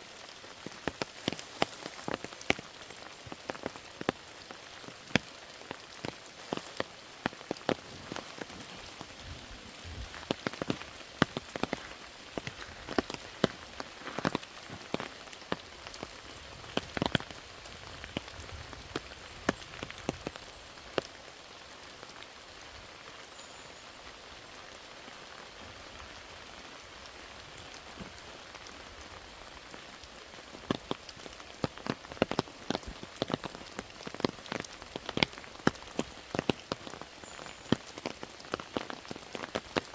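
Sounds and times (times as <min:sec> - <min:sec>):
rain hissing: 0:00.0 - 0:39.9
raindrops tapping on a surface: 0:00.0 - 0:39.9.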